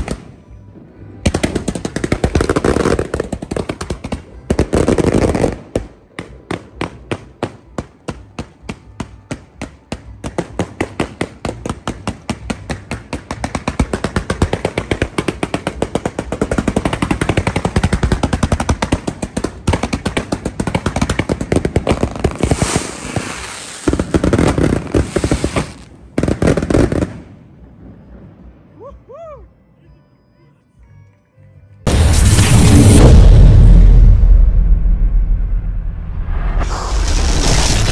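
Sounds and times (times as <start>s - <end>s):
firework bangs: 1.3s - 27.5s, 31.9s - 37.9s
heavier firework bursts: 10.3s - 27.5s, 31.9s - 37.9s.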